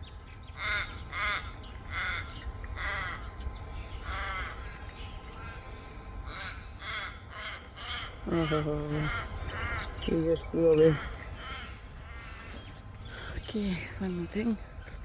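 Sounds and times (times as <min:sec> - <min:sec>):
crow cawing: 0:00.5 - 0:14.2.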